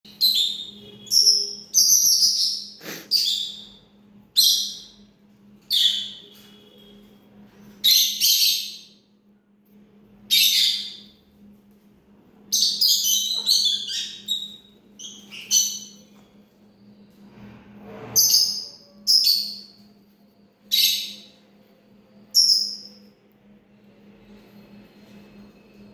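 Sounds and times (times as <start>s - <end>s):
parrot chirping: 12.6s - 16.1s.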